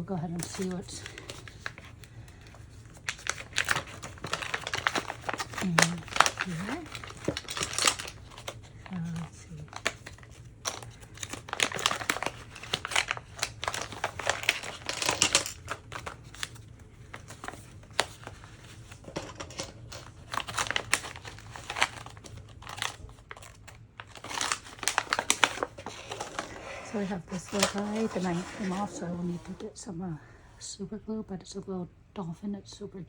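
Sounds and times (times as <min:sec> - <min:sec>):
packaging crinkling and rustling: 0:00.2 - 0:29.6.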